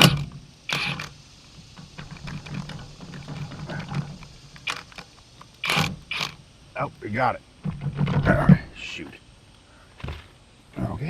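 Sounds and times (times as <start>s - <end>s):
wrench clicking: 0.0s - 6.4s.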